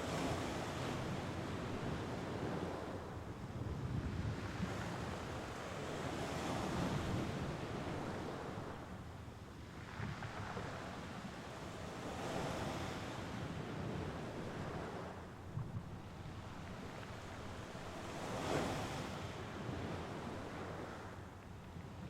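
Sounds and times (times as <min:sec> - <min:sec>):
waves washing onto shore: 0:00.0 - 0:09.0.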